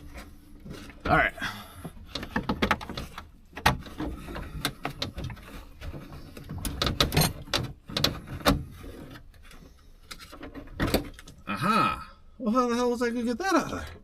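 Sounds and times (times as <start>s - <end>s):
plastic trim clicking and creaking: 1.9s - 11.4s.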